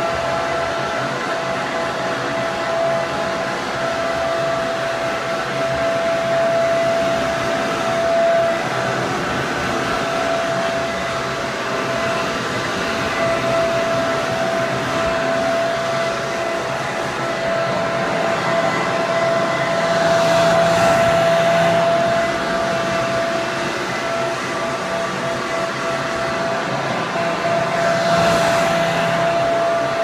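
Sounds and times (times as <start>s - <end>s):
hair dryer running: 0.0s - 30.0s.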